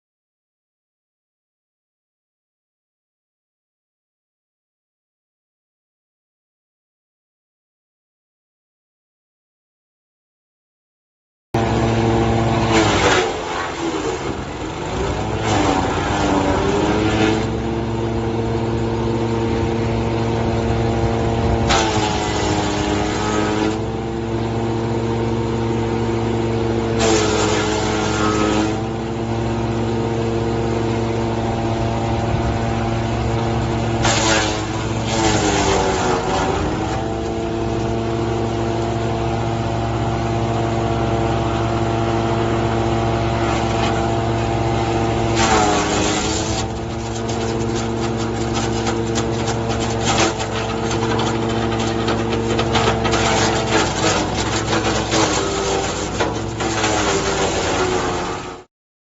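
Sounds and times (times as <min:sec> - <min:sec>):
wood chipper engine running: 0:11.6 - 0:58.7
branches shredding: 0:12.6 - 0:17.7, 0:21.4 - 0:23.9, 0:27.0 - 0:28.9, 0:34.0 - 0:38.9, 0:43.2 - 0:58.6.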